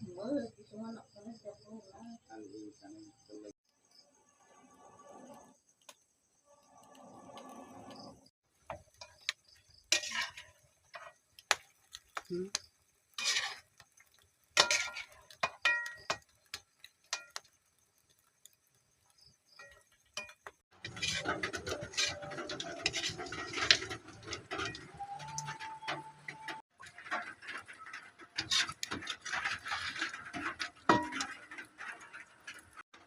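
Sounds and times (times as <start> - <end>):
kitchen utensils and dishes clinking: 8.7 - 11.2, 13.2 - 13.8, 14.6 - 17.4, 19.6 - 33.0.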